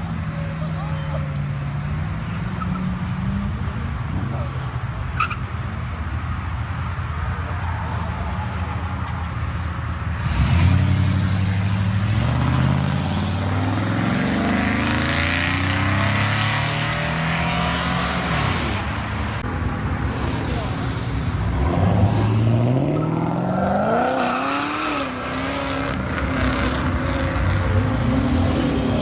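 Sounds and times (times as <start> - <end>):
car engine revving: 10.2 - 19.1, 19.7 - 29.0.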